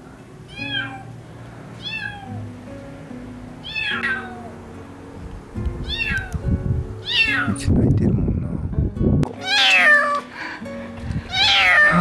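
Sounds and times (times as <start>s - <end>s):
kitten meowing loudly: 0.5s - 1.1s, 1.8s - 2.4s, 3.6s - 4.5s, 5.8s - 6.3s, 7.0s - 7.6s, 9.4s - 10.2s, 11.3s - 12.0s.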